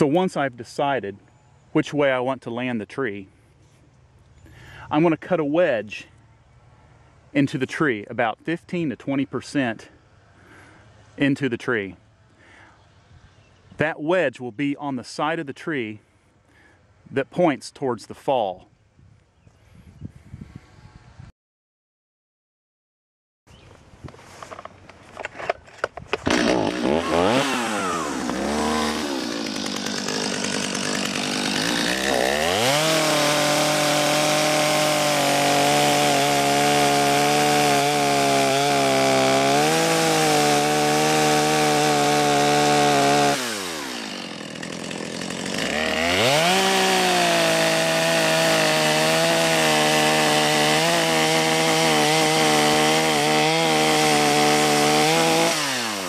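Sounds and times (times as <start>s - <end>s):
chainsaw revving and cutting: 26.2s - 56.0s.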